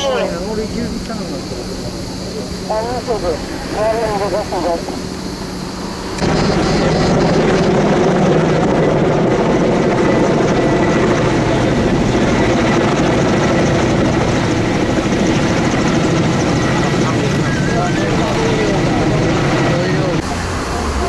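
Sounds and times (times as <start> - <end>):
helicopter rotor and engine: 0.0 - 21.0.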